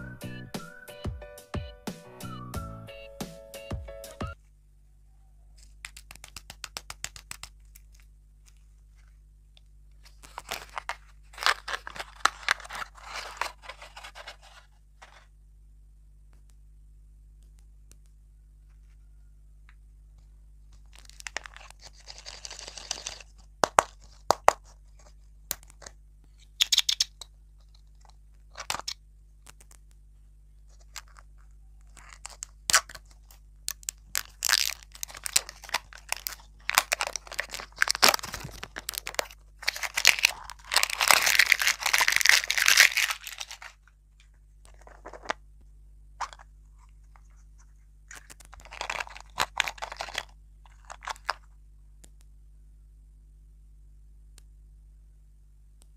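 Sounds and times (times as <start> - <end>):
plastic wrapper crinkling and tearing: 5.6 - 8.7, 10.0 - 15.2, 20.8 - 29.8, 30.7 - 45.4, 48.1 - 51.5.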